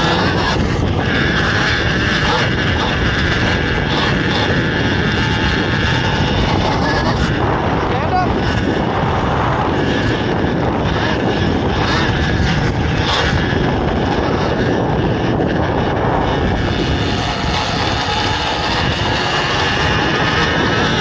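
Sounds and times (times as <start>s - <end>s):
dirt bike engines droning: 0.0s - 21.0s.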